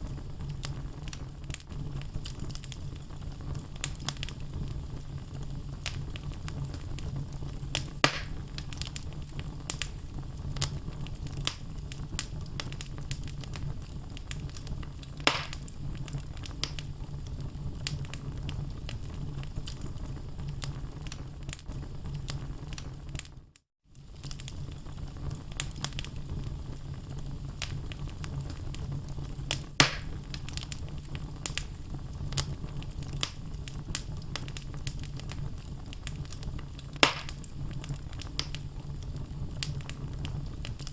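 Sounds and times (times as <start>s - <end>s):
burning logs snapping and popping: 0.0s - 23.3s, 23.9s - 40.9s
low rumble of flames: 0.0s - 40.9s.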